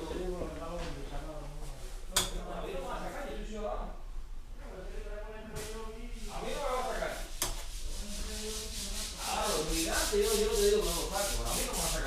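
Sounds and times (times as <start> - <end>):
rubbing scratchy noise: 5.6 - 12.0.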